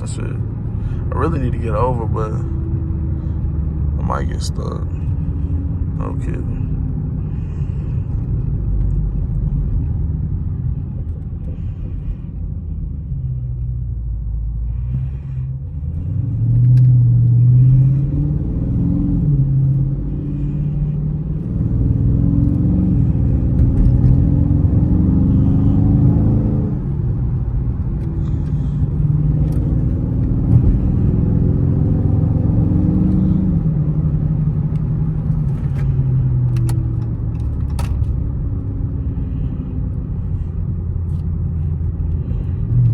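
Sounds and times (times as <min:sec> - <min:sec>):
car engine revving: 0:14.4 - 0:42.9.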